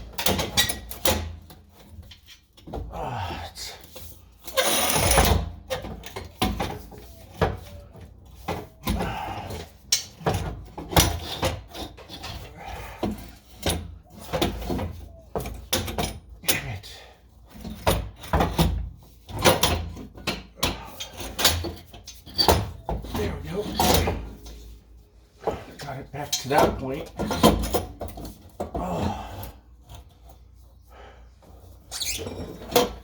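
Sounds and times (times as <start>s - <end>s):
tools knocking and scraping: 3.9s - 16.7s, 17.5s - 29.2s.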